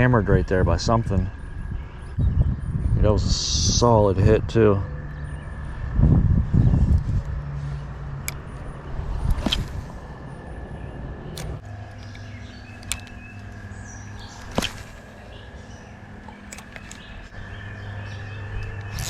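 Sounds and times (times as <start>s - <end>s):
faint bird chirping: 0.0s - 19.0s
low hum: 0.0s - 19.0s
sharp clicks: 11.2s - 15.1s, 16.2s - 17.4s.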